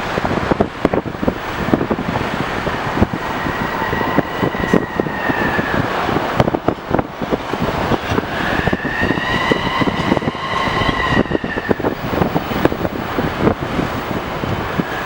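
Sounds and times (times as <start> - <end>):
wind buffeting microphone: 0.0 - 15.0
jet engines whining: 0.4 - 15.0
rumbling roar: 1.6 - 15.0.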